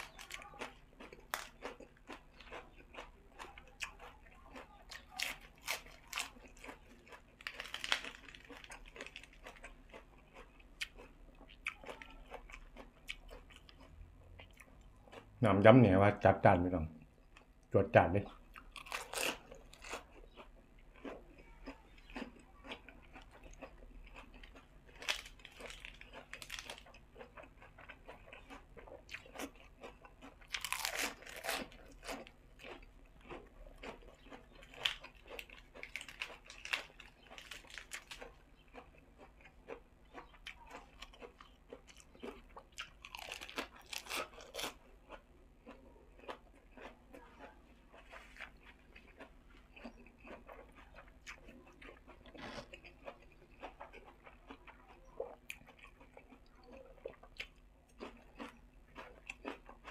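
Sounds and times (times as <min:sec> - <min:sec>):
person chewing and crunching salad: 0:00.0 - 0:59.9.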